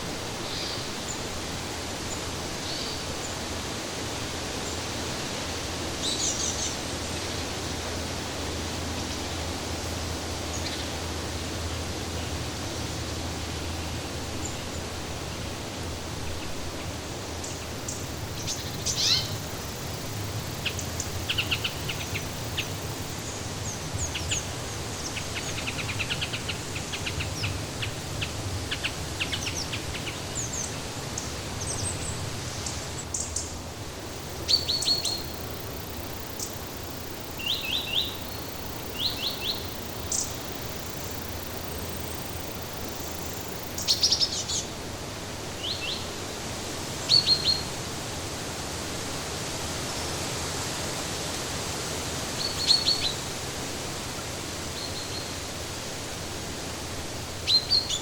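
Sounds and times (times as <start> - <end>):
steady background hiss: 0.0 - 58.0.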